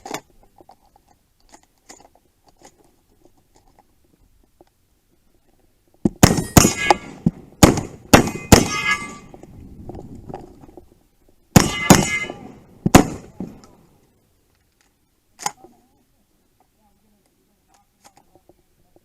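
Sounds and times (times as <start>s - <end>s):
steel target ringing: 6.2s - 7.2s, 8.2s - 9.4s, 11.6s - 12.6s
gunshots: 6.2s - 9.3s, 11.5s - 13.5s.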